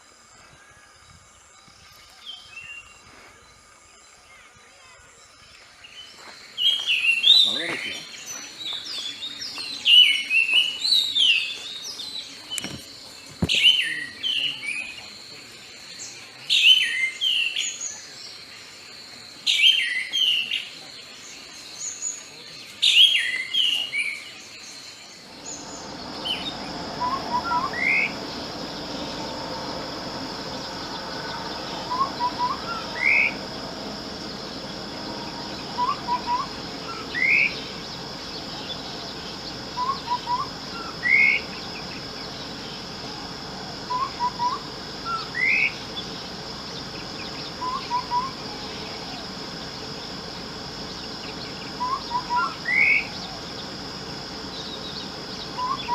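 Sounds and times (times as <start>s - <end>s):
songbird singing: 0.0s - 55.9s
steady high hiss: 25.0s - 55.9s
bird rising chirp: 25.2s - 55.9s.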